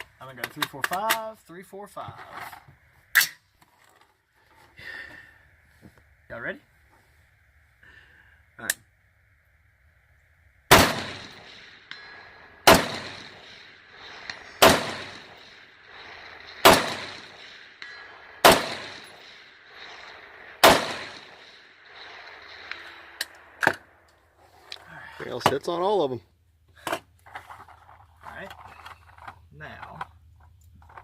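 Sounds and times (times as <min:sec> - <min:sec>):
rifle shots with echo: 0:10.7 - 0:23.7.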